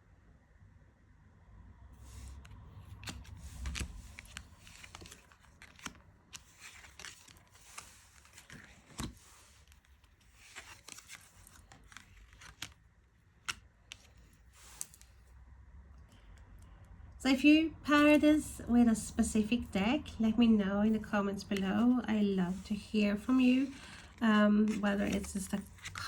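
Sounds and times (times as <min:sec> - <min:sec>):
cards rustling and clicking: 0:02.0 - 0:15.3, 0:21.4 - 0:26.0.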